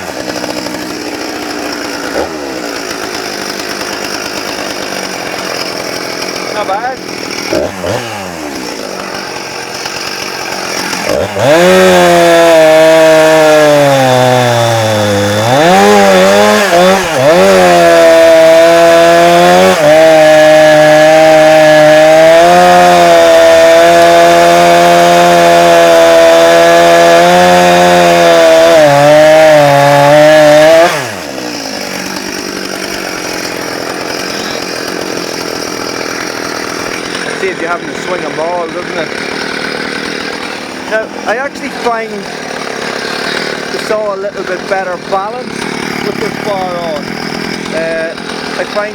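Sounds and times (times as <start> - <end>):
chainsaw sawing into wood: 0.0 - 48.9.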